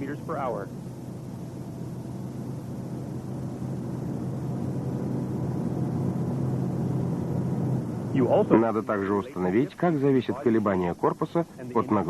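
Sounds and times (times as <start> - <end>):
car driving at highway speed: 2.8 - 8.6.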